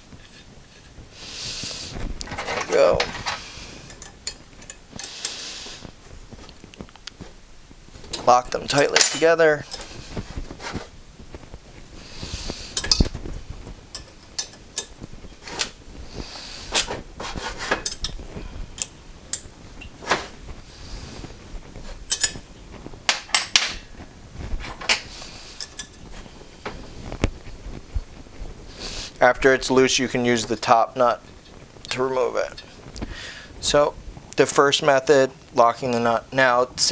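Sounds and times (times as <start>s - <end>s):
wrenches clinking on metal: 2.3s - 4.8s, 8.1s - 10.2s, 17.6s - 18.2s, 22.1s - 22.4s.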